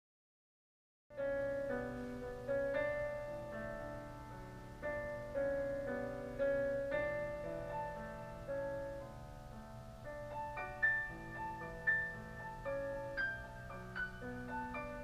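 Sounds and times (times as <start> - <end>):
piano music: 1.1 - 15.0.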